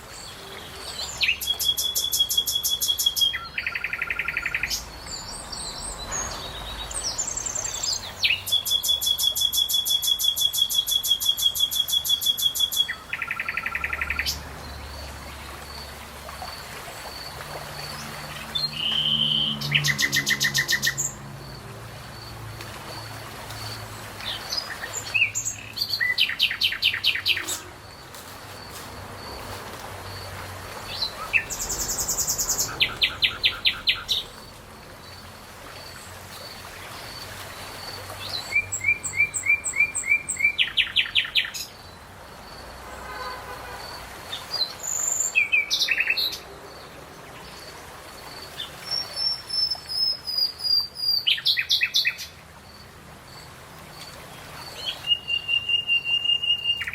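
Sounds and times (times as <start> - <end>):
songbirds singing: 0.0 - 56.9.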